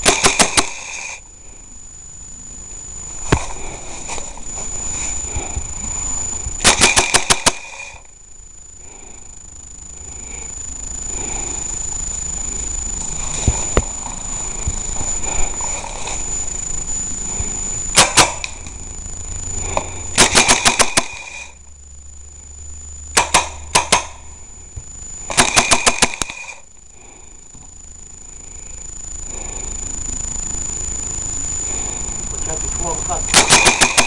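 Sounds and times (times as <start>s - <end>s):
airsoft guns firing: 0.0s - 1.2s, 6.6s - 8.0s, 17.9s - 18.4s, 20.2s - 21.5s, 23.1s - 24.2s, 25.3s - 26.6s, 33.3s - 34.0s
faint high whine: 0.0s - 34.0s.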